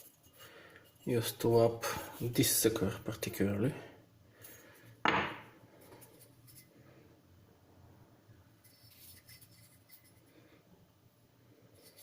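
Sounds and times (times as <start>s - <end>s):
faint room hum: 0.0s - 12.0s
light scratches: 8.6s - 10.3s.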